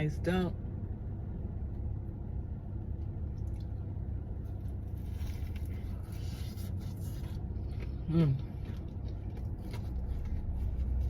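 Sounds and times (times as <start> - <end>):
steady low hum: 0.0 - 11.0
wet chewing with crunches: 3.0 - 11.0.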